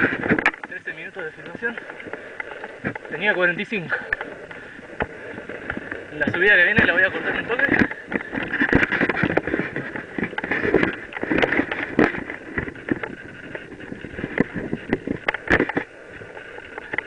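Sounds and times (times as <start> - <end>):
bike knocking and rattling: 0.0 - 17.0
tyres and wind rushing: 0.0 - 17.0.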